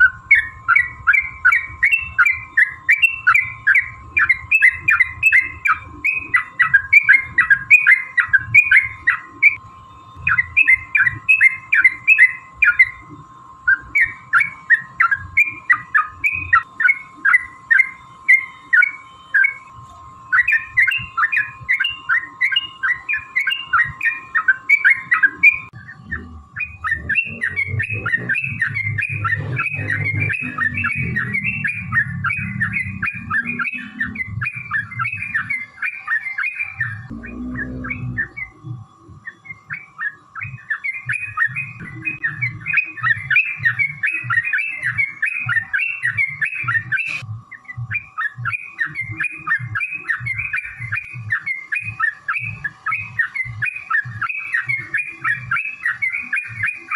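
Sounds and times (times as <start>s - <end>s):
bulbul singing: 0.0s - 56.9s
low rumble: 37.1s - 38.5s.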